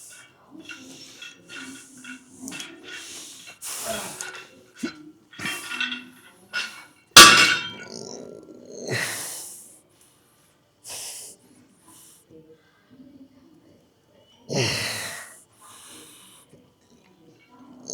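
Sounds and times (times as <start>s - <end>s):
gym weights clanking down: 0.6s - 8.0s.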